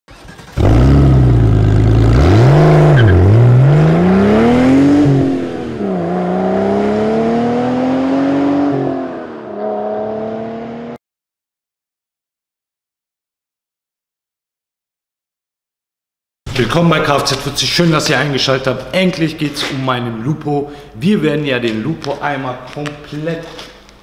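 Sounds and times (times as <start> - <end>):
car engine revving: 0.1 - 11.0.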